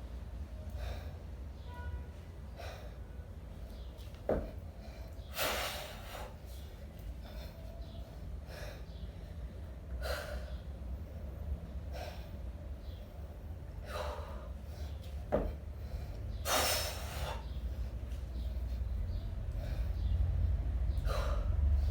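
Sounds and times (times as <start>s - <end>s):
steady low rumble: 0.0s - 21.9s
person breathing hard: 0.7s - 1.4s, 7.1s - 11.2s, 13.8s - 15.0s, 15.7s - 17.9s, 18.8s - 20.2s, 21.0s - 21.9s.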